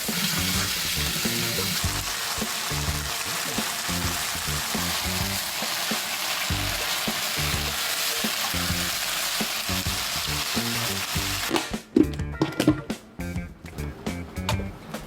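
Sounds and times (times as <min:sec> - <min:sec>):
meat sizzling in a hot pan: 0:00.0 - 0:11.5
background music with low beat: 0:00.1 - 0:15.0.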